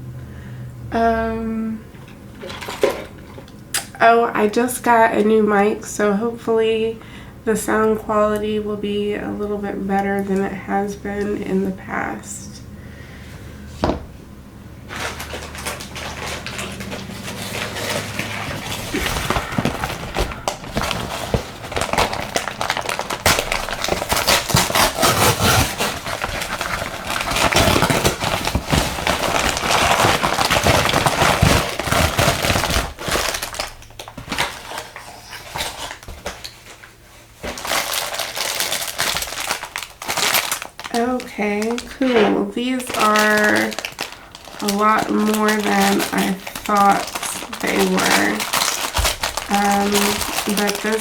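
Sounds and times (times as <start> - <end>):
packaging rustling and crinkling: 14.8 - 51.0.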